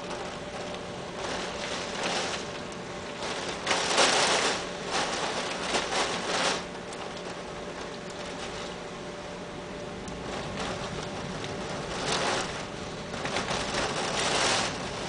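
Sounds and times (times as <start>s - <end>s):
heavy rain beating on a window: 0.0s - 15.0s.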